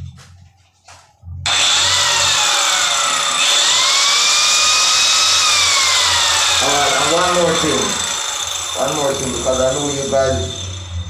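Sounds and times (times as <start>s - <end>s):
electric tile saw whining: 1.5s - 11.0s.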